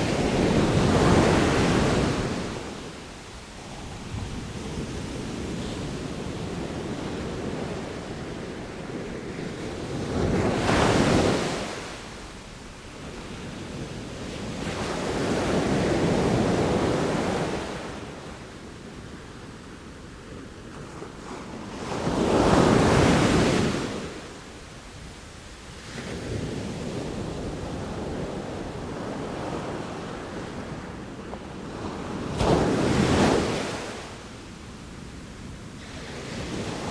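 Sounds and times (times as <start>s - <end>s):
ocean waves breaking on shore: 0.0s - 12.1s.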